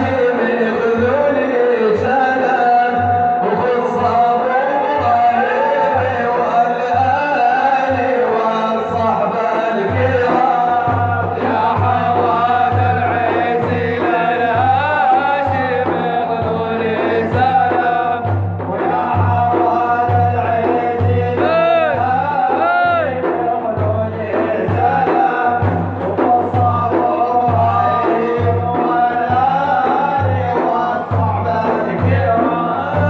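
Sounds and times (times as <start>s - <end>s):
steady low drumbeat: 0.0s - 33.0s.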